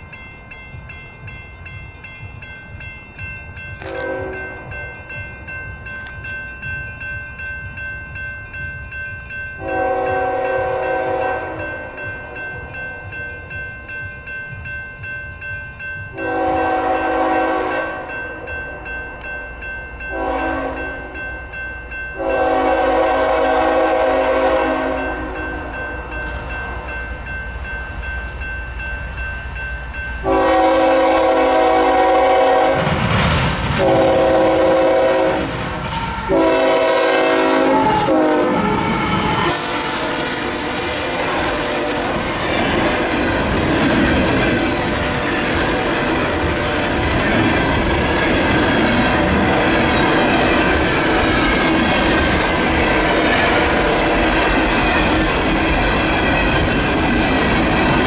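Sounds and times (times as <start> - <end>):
train rumbling: 0.0 - 58.0
locomotive horn blasts: 3.8 - 4.6, 9.6 - 11.7, 16.2 - 18.1, 20.1 - 21.0, 22.2 - 25.8, 30.2 - 32.9, 33.8 - 42.1.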